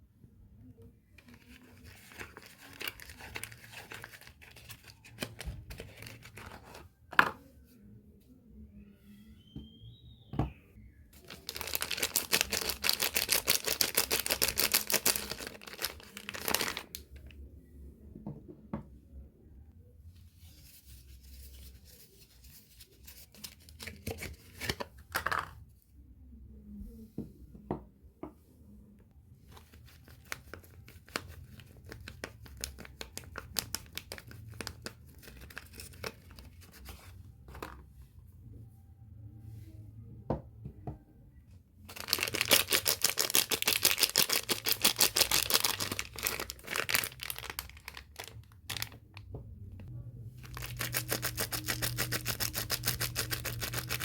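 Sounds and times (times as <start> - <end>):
wrapper crinkling: 1.2 - 6.8, 11.2 - 17.0, 41.9 - 49.0, 50.4 - 54.0
wrapper tearing: 1.8 - 6.6, 11.3 - 17.0, 41.9 - 49.0, 50.4 - 54.0.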